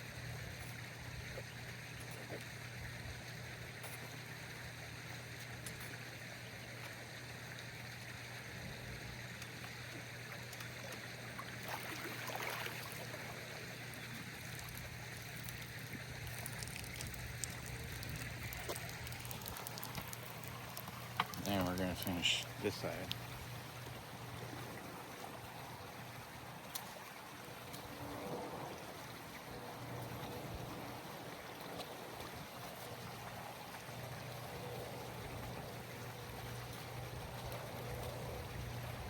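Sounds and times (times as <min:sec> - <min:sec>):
low steady hum: 0:00.0 - 0:26.4
running water: 0:00.0 - 0:39.0.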